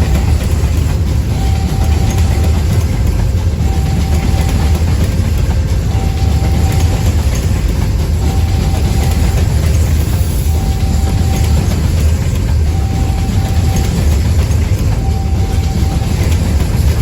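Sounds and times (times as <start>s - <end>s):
freight train wagons rumbling: 0.0s - 17.0s
short steady tone: 10.4s - 11.8s, 12.7s - 14.2s.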